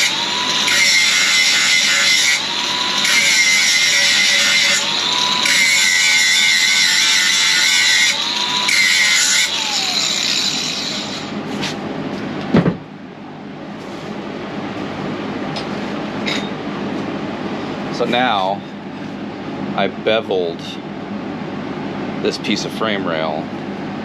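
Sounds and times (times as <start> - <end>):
angle grinder whining on steel: 0.0 - 11.4.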